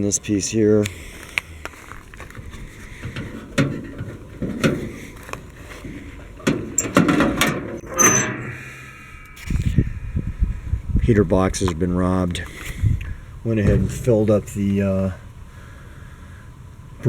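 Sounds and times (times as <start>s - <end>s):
metal parts clicking and knocking: 2.2s - 9.5s
short metallic squeak: 6.5s - 9.8s.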